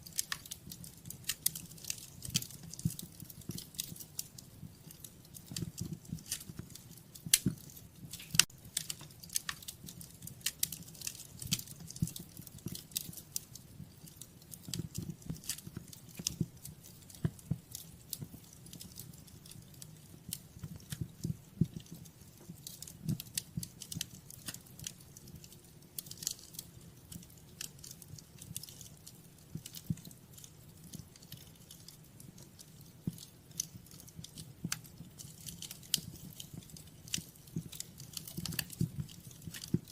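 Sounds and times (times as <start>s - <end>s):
low rumble of burning fire: 0.0s - 39.9s
wood fire crackling: 0.0s - 39.9s.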